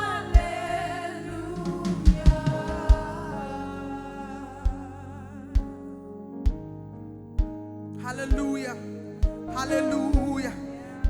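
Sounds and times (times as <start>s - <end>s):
low thumps: 0.0s - 3.8s
person singing: 0.0s - 5.7s, 8.0s - 11.0s
steady held chords: 0.0s - 7.5s.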